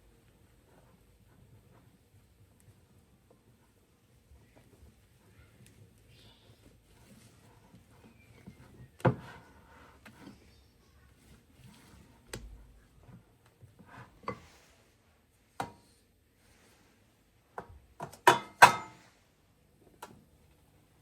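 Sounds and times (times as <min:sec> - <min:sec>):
kitchen utensils and dishes clinking: 0:18.3 - 0:19.1.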